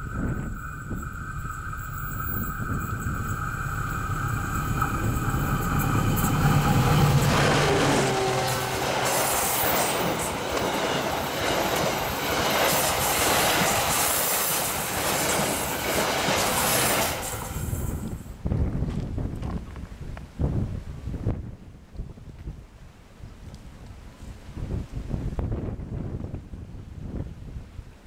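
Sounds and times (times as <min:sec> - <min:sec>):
train wheels rushing past: 0:00.0 - 0:18.3
diesel locomotive engine: 0:00.0 - 0:18.4.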